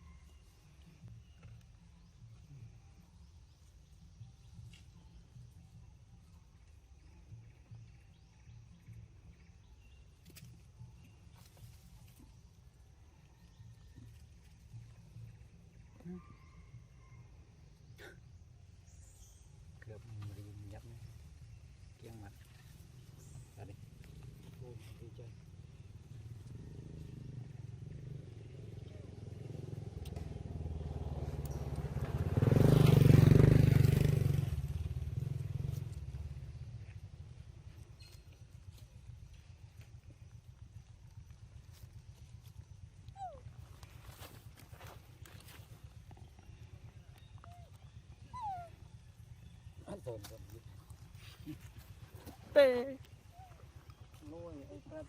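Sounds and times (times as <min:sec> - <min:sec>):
motor vehicle passing by: 0:19.2 - 0:55.0.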